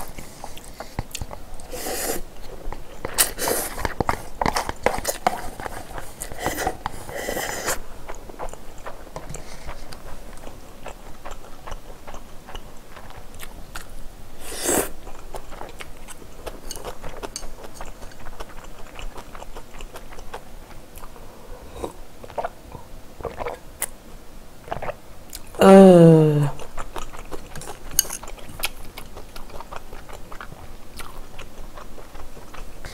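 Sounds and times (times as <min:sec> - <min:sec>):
chewing and biting food: 0:02.4 - 0:14.0, 0:14.9 - 0:21.2, 0:23.2 - 0:24.0, 0:24.7 - 0:25.6, 0:26.6 - 0:32.9.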